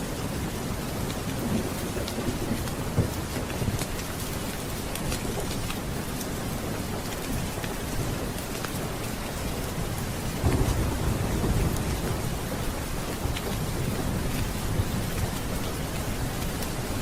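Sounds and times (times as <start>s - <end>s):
heavy rain: 0.0s - 17.0s
thunder rumbling: 5.2s - 17.0s.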